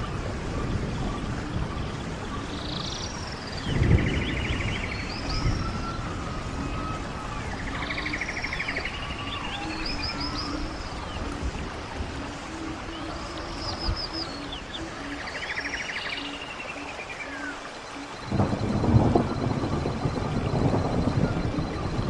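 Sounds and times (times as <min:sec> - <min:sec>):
running stream: 0:00.0 - 0:22.0
songbirds singing: 0:00.0 - 0:22.0.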